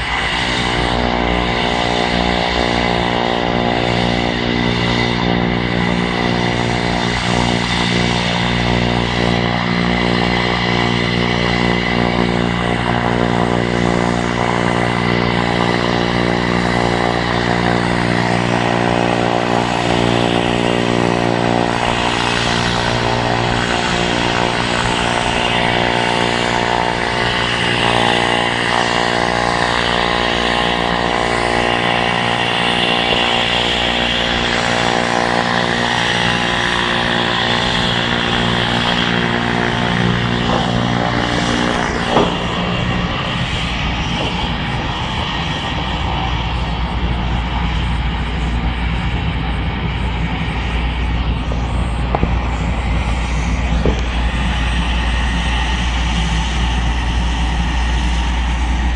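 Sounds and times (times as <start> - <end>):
turbine aircraft engine droning: 0.0 - 58.9
sharp knock: 42.0 - 43.0.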